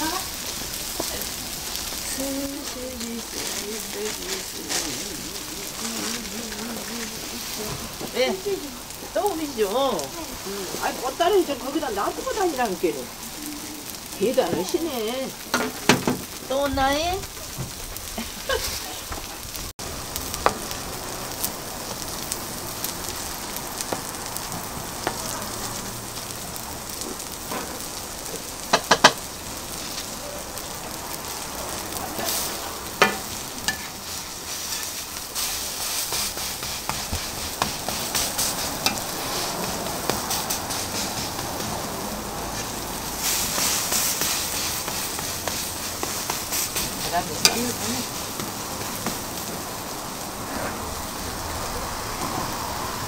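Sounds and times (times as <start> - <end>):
patties sizzling on a griddle: 0.0 - 53.0
spatula tapping and scraping griddle: 15.5 - 16.4, 28.7 - 29.2, 32.2 - 49.6.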